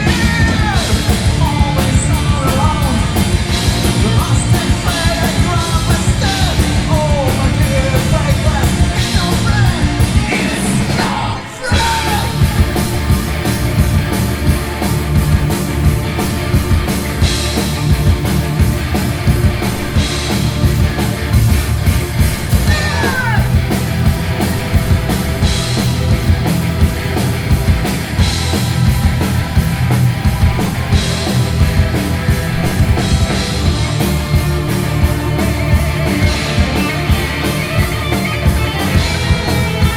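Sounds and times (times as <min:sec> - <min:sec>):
drums: 0:00.0 - 0:39.9
electric guitars: 0:00.0 - 0:39.9
person yelling vocals: 0:06.1 - 0:12.8, 0:22.6 - 0:23.7.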